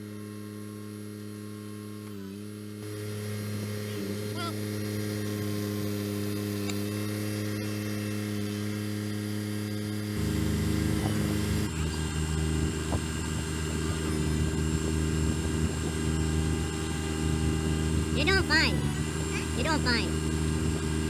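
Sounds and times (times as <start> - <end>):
tractor diesel engine running: 10.1 - 21.0.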